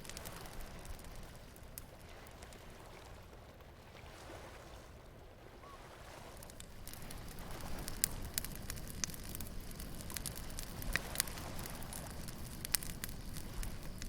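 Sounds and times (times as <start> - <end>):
bonfire crackling and popping: 0.0 - 3.3, 6.2 - 14.0
low rumble of surf: 0.0 - 14.0.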